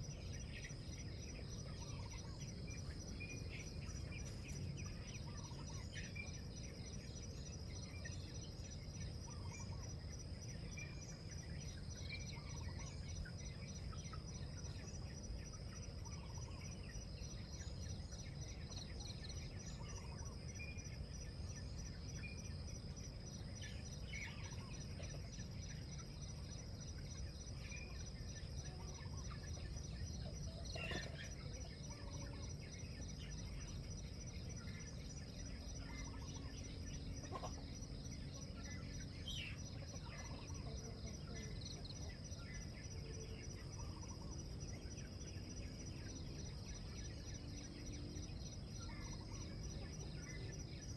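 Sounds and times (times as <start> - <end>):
insects trilling: 0.0 - 50.9
small birds chirping: 0.0 - 50.9.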